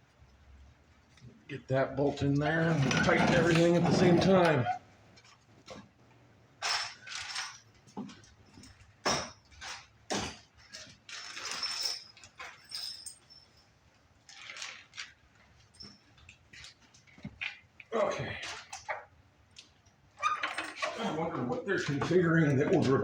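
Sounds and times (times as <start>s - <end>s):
hardware scraping and rattling: 2.2s - 5.9s, 6.6s - 13.6s, 20.2s - 23.0s.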